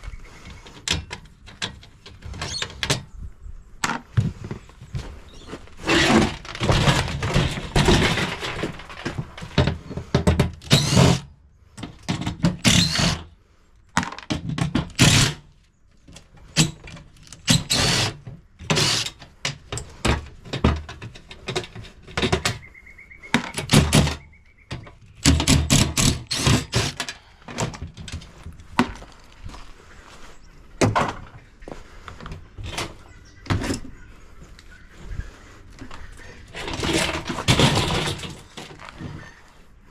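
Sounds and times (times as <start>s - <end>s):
sheet-metal panels clanking: 36.6s - 38.9s.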